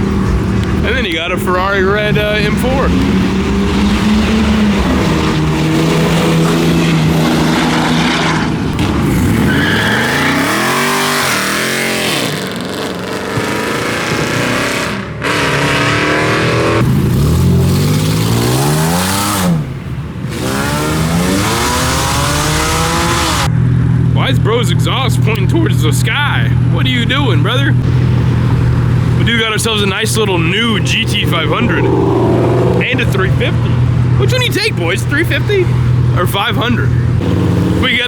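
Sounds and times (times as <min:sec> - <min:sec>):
car engines revving hard: 0:00.0 - 0:38.0.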